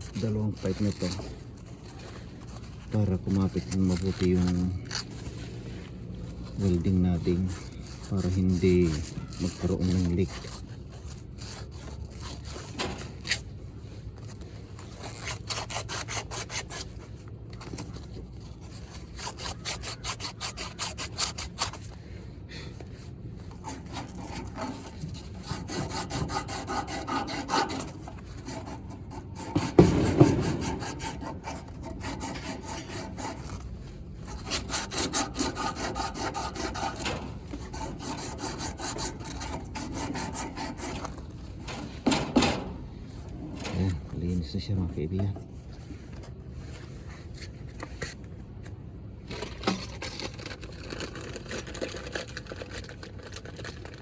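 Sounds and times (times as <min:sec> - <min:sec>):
sandpaper rubbing on pipes: 0:00.0 - 0:13.5, 0:14.6 - 0:17.2, 0:18.0 - 0:22.0, 0:23.0 - 0:45.2
loud knock: 0:29.5 - 0:30.9.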